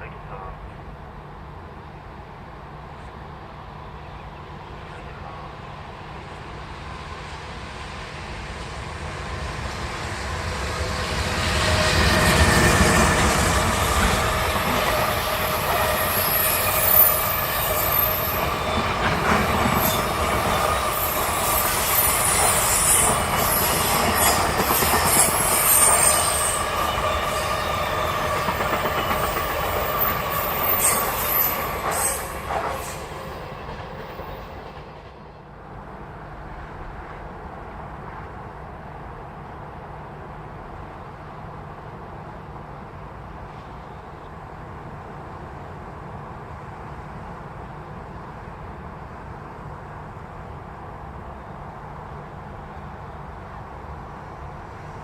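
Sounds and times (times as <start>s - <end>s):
freight train passing: 0.0s - 55.0s
wheel squeal: 30.0s - 33.1s.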